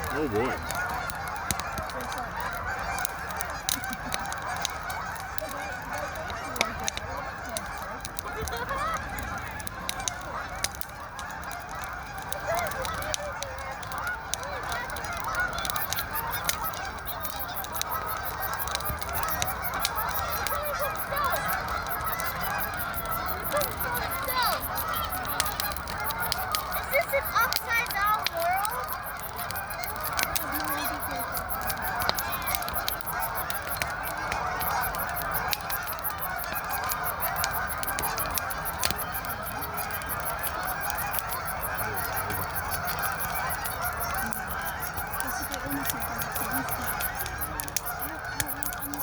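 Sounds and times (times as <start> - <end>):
geese honking: 0.0 - 49.0
wood fire crackling: 0.0 - 49.0.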